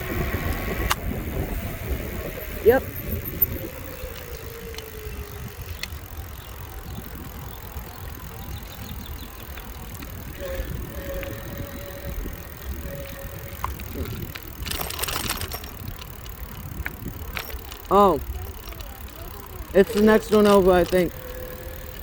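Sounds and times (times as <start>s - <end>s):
wind on microphone: 0.0s - 18.9s
bicycle tyres rumbling on road: 0.0s - 22.0s
rapid rattling: 0.0s - 22.0s.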